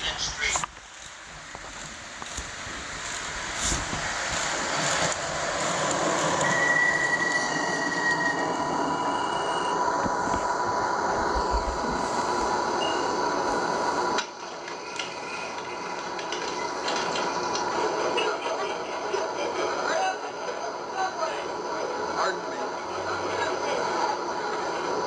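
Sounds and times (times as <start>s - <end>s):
model subway train running: 0.0s - 25.0s
speaker playing subway whine and squeal: 1.7s - 25.0s.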